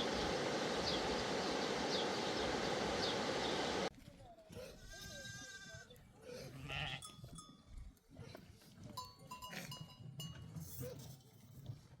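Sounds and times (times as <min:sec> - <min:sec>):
goat and sheep neck bells clinking: 0:06.9 - 0:07.9, 0:08.8 - 0:11.4.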